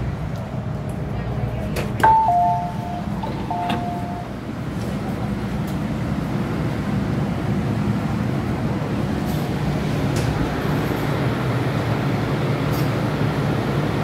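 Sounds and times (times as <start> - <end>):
two-note falling electronic chime: 2.0 - 4.3
electric train running: 2.0 - 4.9.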